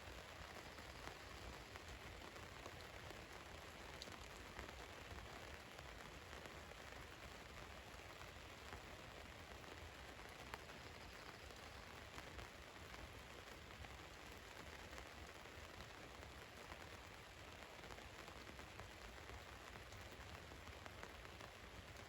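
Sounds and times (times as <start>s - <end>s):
rain falling on a van: 0.0s - 22.0s
single raindrops ticking: 0.6s - 6.4s.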